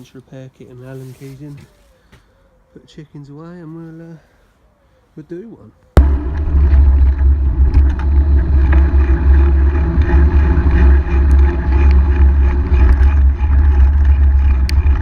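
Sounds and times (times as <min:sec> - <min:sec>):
wind and road noise: 0:06.0 - 0:15.0.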